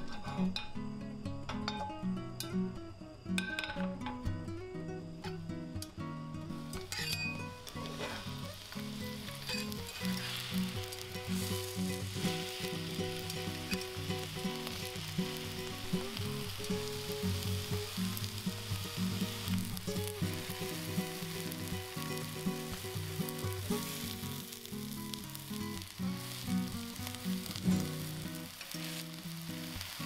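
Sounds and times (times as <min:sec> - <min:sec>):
light background music: 0:00.0 - 0:30.0
onions sizzling in a frying pan: 0:06.4 - 0:30.0.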